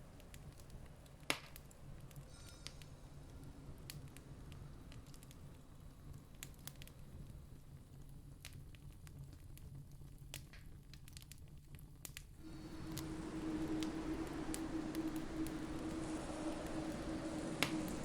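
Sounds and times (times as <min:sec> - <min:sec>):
campfire crackling: 0:12.0 - 0:18.0
low rumble: 0:12.4 - 0:18.0
rushing noise: 0:12.4 - 0:18.0
steady low hum: 0:12.4 - 0:18.0.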